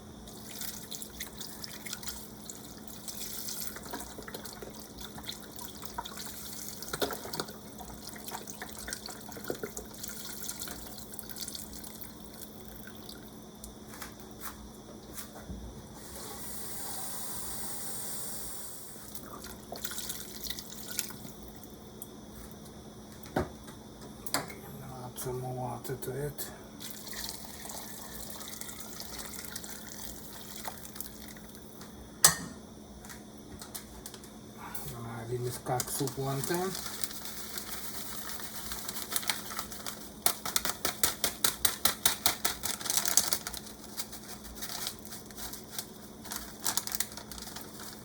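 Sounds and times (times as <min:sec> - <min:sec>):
liquid splashing and glugging: 0:00.3 - 0:12.0.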